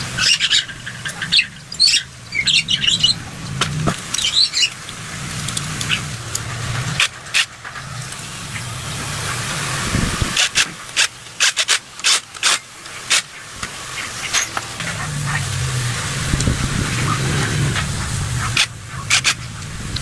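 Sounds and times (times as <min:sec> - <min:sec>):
low motor hum: 0:00.0 - 0:11.3, 0:12.8 - 0:20.0
spraying hiss: 0:00.0 - 0:20.0
sharp clicks and knocks: 0:03.4 - 0:08.2, 0:10.4 - 0:14.9.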